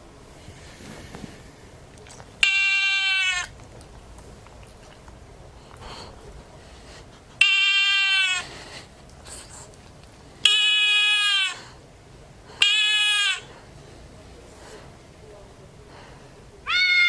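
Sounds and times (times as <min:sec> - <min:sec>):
animal call: 0:02.4 - 0:03.6, 0:07.4 - 0:08.6, 0:10.4 - 0:11.8, 0:12.6 - 0:13.6, 0:16.6 - 0:17.0.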